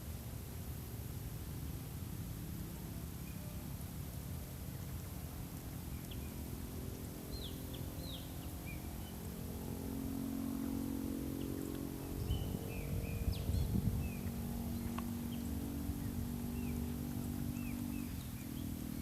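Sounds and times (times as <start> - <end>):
low drone: 0.0 - 19.0
low outdoor rumble: 0.0 - 19.0
birds chirping: 4.4 - 19.0.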